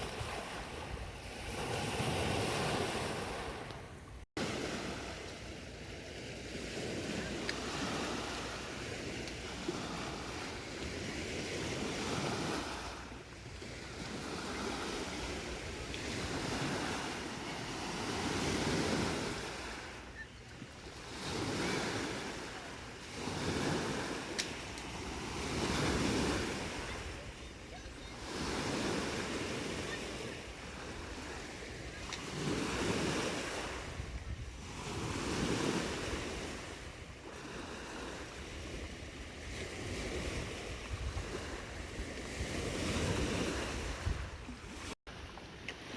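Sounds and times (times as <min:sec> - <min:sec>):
lake waves washing onto shore: 0:00.0 - 0:45.9
wind rumbling on microphone: 0:32.4 - 0:44.9.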